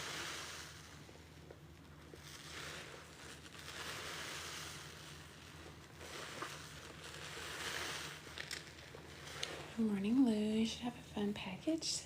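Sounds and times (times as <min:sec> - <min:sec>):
water streaming from a squeezed sponge: 0:02.1 - 0:09.8.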